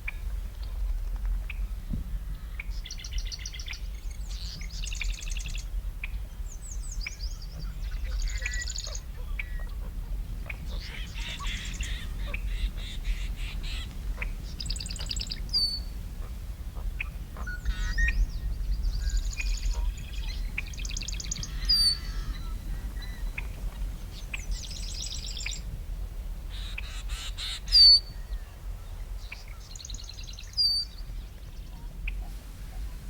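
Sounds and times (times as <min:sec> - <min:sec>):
birds chattering trills: 0:10.5 - 0:25.6.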